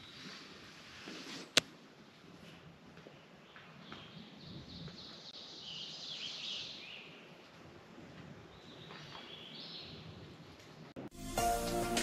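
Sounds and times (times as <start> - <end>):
bird song: 3.1 - 7.4, 8.5 - 10.6.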